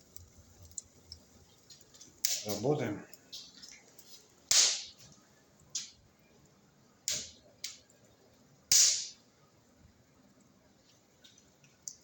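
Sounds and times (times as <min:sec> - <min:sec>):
firewood popping: 0:00.0 - 0:09.2.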